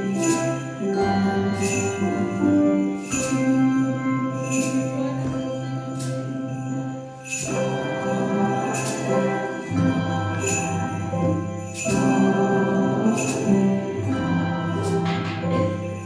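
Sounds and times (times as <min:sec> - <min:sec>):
bright jingling accent: 0:00.0 - 0:16.0
handbell choir ringing chords: 0:00.0 - 0:16.0.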